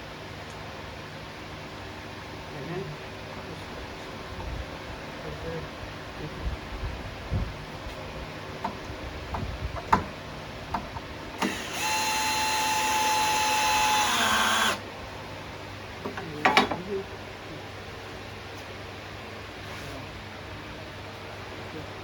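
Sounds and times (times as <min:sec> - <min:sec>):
knocks of wood being handled: 0:08.6 - 0:11.1, 0:16.0 - 0:16.9
power drill driving a screw: 0:11.4 - 0:14.8.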